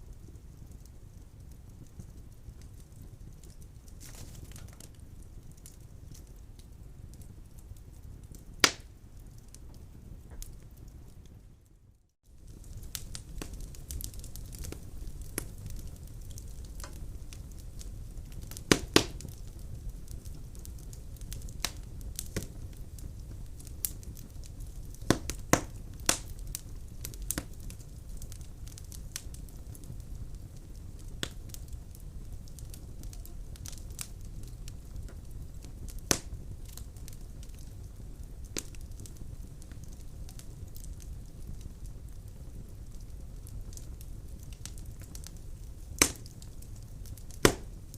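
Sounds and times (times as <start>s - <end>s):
fire popping: 0.0s - 47.9s
firewood crackling: 0.0s - 47.9s
low steady fire rumble: 0.0s - 47.9s.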